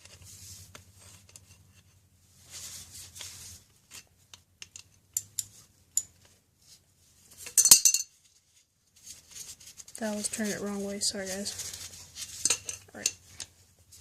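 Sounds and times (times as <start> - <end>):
rustle: 0.0 - 14.0.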